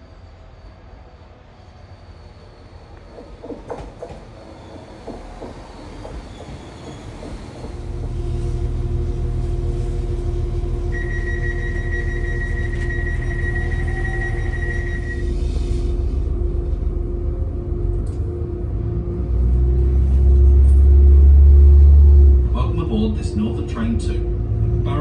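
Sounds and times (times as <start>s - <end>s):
train wheels clicking and squealing: 0.6s - 16.8s
diesel engine rumbling: 6.8s - 25.0s
high steady tone: 8.1s - 17.8s.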